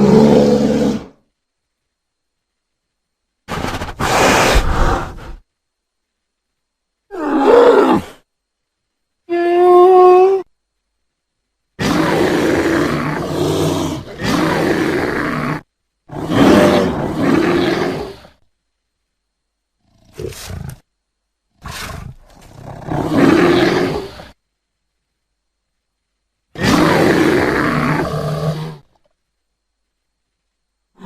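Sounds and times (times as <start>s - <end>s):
bear roaring and growling: 0.0s - 1.2s, 11.8s - 18.4s, 19.9s - 20.9s, 21.6s - 24.4s, 26.6s - 28.9s.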